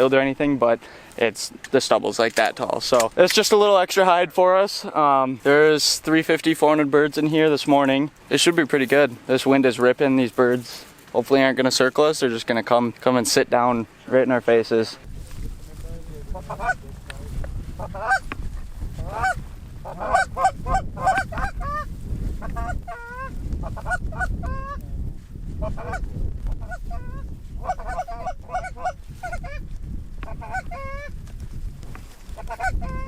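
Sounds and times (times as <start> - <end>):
wind noise on microphone: 15.0 - 33.0
geese honking and clucking: 16.2 - 17.0, 17.8 - 24.8, 25.6 - 29.6, 30.2 - 31.2, 32.3 - 33.0.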